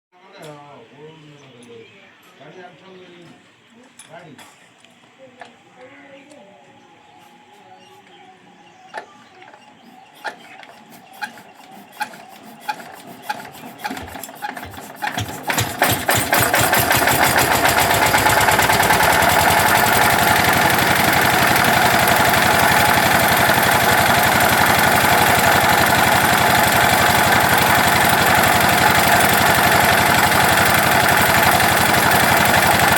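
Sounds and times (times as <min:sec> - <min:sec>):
diesel generator engine: 0:09.8 - 0:32.9.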